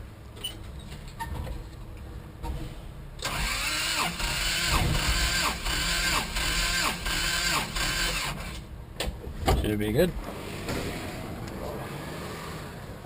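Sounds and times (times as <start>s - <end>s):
starter motor cranking engine: 3.2s - 8.6s.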